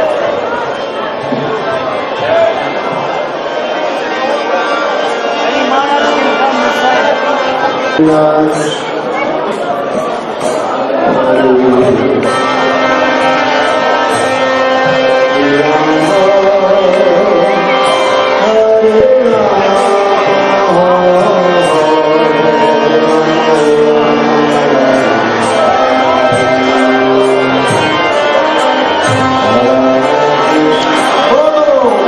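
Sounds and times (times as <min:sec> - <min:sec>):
long held instrumental notes: 0:00.0 - 0:32.0
person singing: 0:10.6 - 0:32.0
drum beat: 0:29.0 - 0:30.0.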